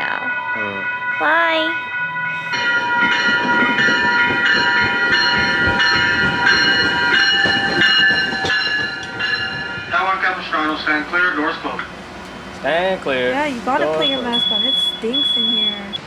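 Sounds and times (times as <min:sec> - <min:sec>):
repeating ringing bell: 0:00.0 - 0:10.0, 0:13.7 - 0:16.0
steady high tones: 0:00.0 - 0:16.0
train low rumble: 0:00.0 - 0:16.0.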